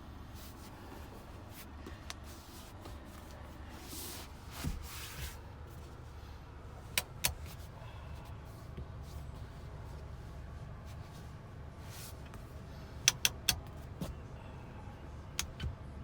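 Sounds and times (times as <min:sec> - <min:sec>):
car cabin low hum: 0:00.0 - 0:16.0
sharp clicks of interior fittings: 0:06.8 - 0:07.7, 0:13.0 - 0:14.2.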